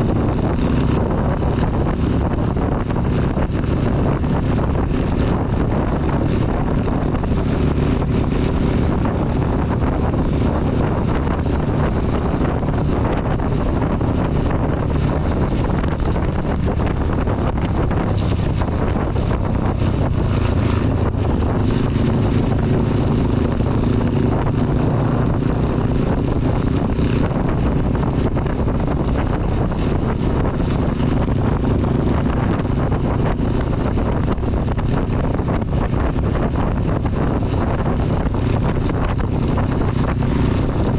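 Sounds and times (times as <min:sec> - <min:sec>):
motorcycle engine running: 0:00.0 - 0:40.9
wind on microphone: 0:00.0 - 0:40.9
heavy rain: 0:03.7 - 0:35.8.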